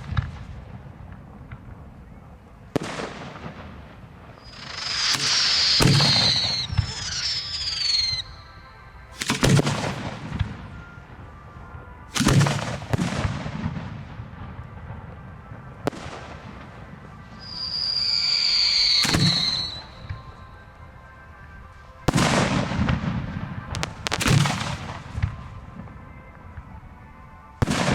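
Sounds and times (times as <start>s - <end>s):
rumble and crackle: 0.0s - 4.4s
fireworks whistling: 2.0s - 26.3s
fireworks bangs: 2.7s - 11.5s, 12.1s - 20.4s, 22.1s - 26.0s, 27.6s - 27.9s.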